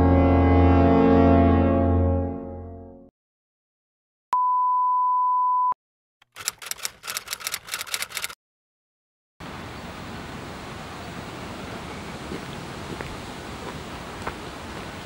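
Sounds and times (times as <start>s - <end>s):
typewriter key clacks: 6.3s - 8.4s.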